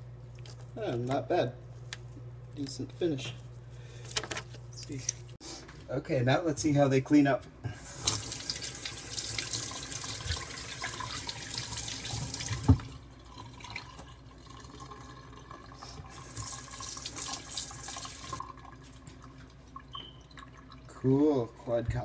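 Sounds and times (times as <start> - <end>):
tap water running into sink: 7.9 - 19.2.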